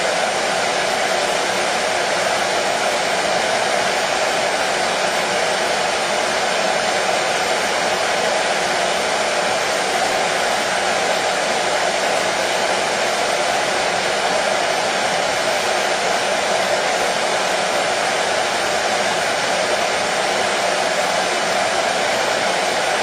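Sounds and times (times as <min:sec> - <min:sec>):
hair dryer running: 0:00.0 - 0:23.0.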